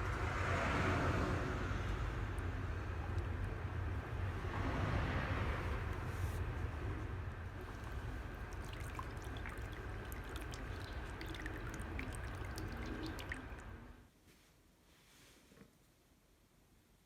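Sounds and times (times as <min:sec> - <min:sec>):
water pouring and trickling: 0:01.9 - 0:14.0
small drips or bubbling ticks: 0:02.3 - 0:03.7, 0:07.5 - 0:13.9.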